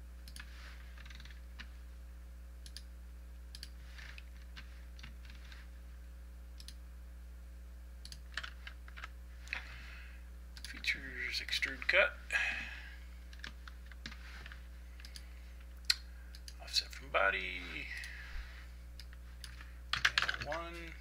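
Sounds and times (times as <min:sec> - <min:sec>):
low electrical hum: 0:00.0 - 0:21.0
computer keyboard keystrokes: 0:08.0 - 0:09.1.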